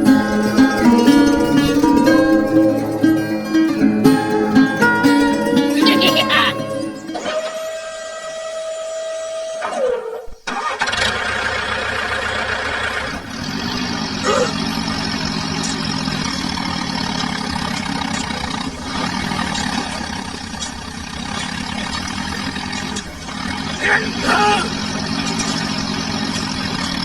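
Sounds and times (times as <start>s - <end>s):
engine running steadily: 0.0s - 9.5s, 10.5s - 27.0s
held tone dropping in pitch: 0.0s - 10.0s.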